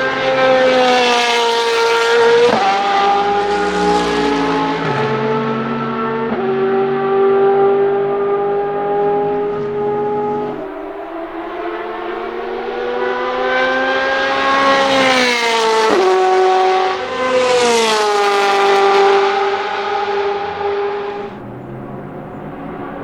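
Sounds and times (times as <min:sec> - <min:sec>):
race car engine at high revs: 0:00.0 - 0:23.0.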